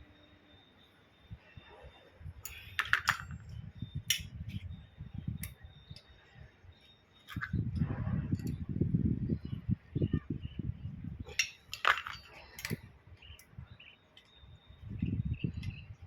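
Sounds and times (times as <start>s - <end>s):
metal parts clinking: 2.4s - 4.6s, 6.8s - 8.6s, 11.2s - 14.5s.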